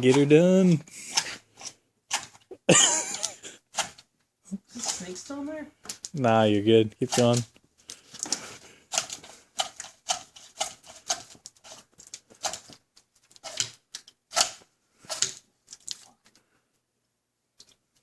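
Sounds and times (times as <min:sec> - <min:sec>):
rod scraping inside drain pipe: 0:08.4 - 0:12.7, 0:13.3 - 0:15.4.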